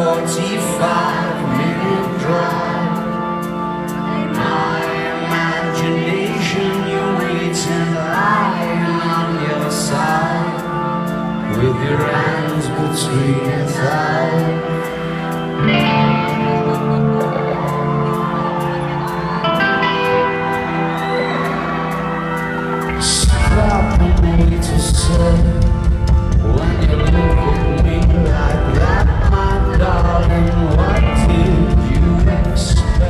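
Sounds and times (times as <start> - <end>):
man singing lead vocal: 0.0 - 21.4, 22.8 - 33.0
crowd singing along: 0.0 - 33.0
keyboard chords: 0.0 - 33.0
ticking beat: 22.4 - 33.0
bass and drums: 23.0 - 33.0.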